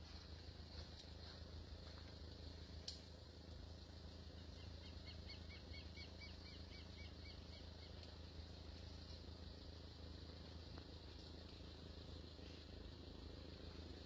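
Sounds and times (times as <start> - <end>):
steady low hum: 0.0 - 14.0
small bird chirping: 4.3 - 8.6.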